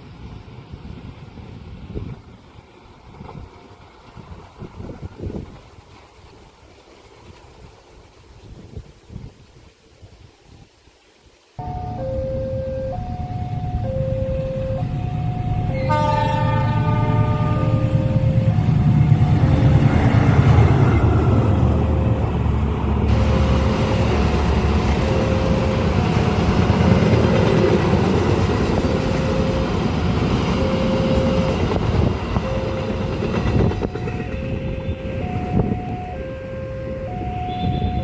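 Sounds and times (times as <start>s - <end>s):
train wheels rumbling on rails: 0.0s - 8.9s, 12.9s - 38.0s
two-tone crossing warning alarm: 11.6s - 22.5s, 23.1s - 38.0s.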